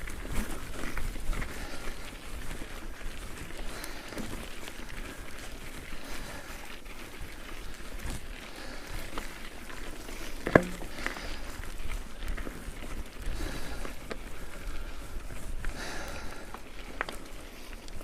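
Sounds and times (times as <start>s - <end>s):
bike tyres crunching on gravel: 0.0s - 18.0s.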